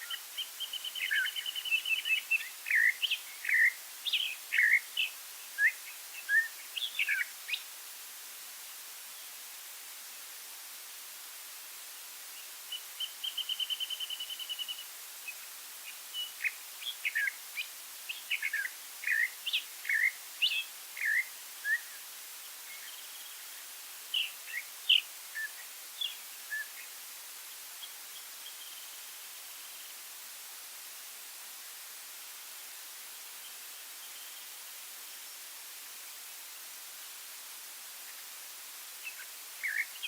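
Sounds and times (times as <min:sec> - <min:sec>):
songbird trill: 0:00.0 - 0:07.7, 0:12.7 - 0:22.0, 0:24.1 - 0:27.0, 0:39.0 - 0:40.0
steady background hiss: 0:00.0 - 0:40.0.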